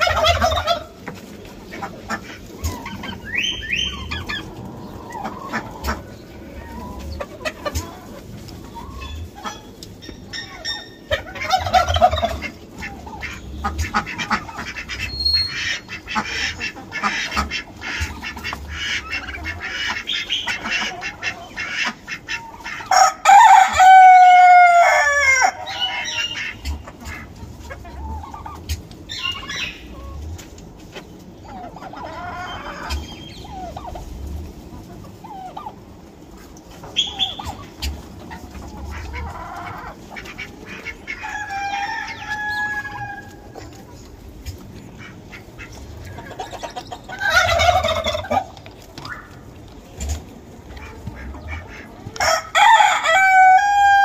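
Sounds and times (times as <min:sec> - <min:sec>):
chickens clucking: 0:00.0 - 0:54.0
rooster crowing: 0:22.9 - 0:25.7, 0:41.2 - 0:43.4, 0:52.2 - 0:54.0.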